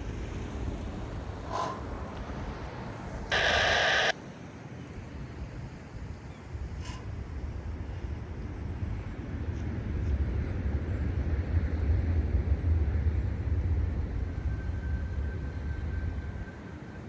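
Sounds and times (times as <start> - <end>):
faint steady whine: 0.0 - 5.0.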